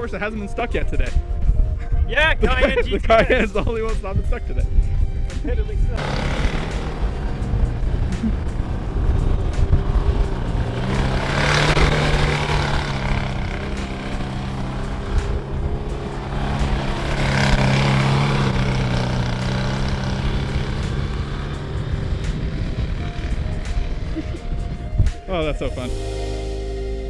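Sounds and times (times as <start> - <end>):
car engine running: 6.0 - 24.8
rushing noise: 6.0 - 25.1.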